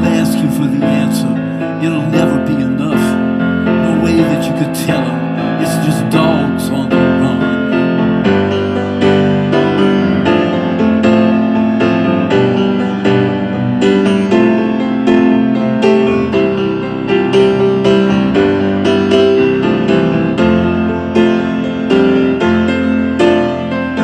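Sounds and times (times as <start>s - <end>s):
piano playing chords: 0.0s - 24.0s.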